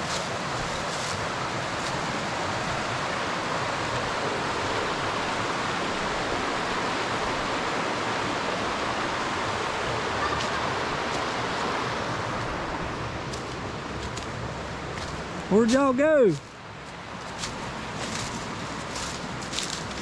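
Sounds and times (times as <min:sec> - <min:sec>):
creek water rushing over rocks: 0:00.0 - 0:20.0.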